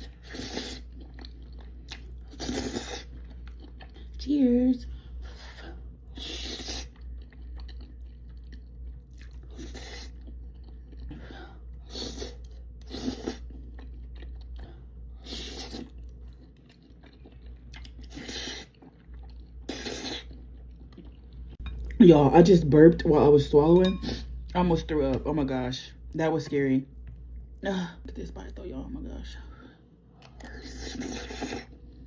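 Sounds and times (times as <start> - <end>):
person chewing food: 0.0 - 4.3, 4.9 - 22.0.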